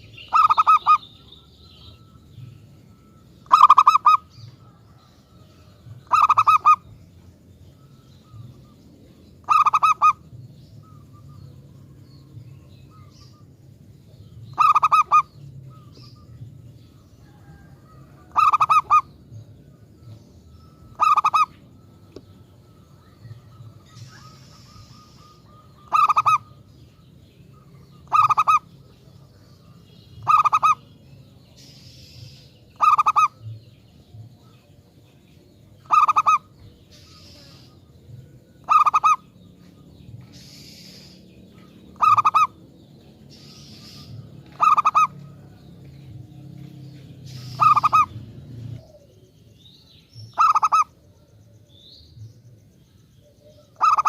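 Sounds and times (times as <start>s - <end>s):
dove cooing: 0.0s - 7.0s, 9.4s - 13.5s, 14.2s - 19.1s, 20.6s - 30.9s, 32.2s - 34.9s, 35.7s - 42.7s, 43.3s - 45.6s, 47.3s - 49.4s, 50.3s - 51.4s, 53.2s - 54.0s
faint high chirps: 0.0s - 54.0s.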